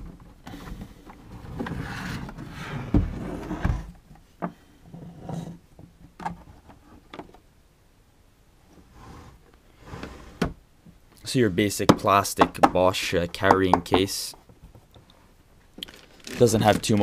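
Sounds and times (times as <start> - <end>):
box rustling and scraping: 0.5 - 4.0, 4.9 - 5.6, 15.8 - 17.0.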